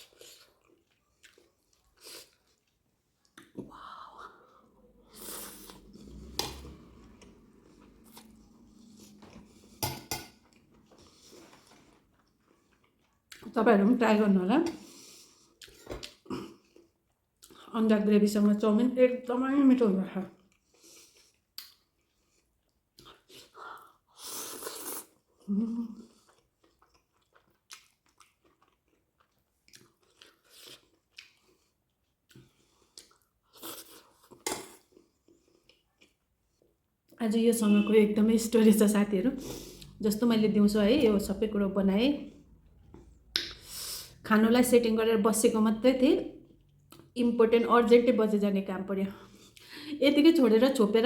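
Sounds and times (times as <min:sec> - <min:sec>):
cutlery clinking on a plate: 0:09.8 - 0:10.4.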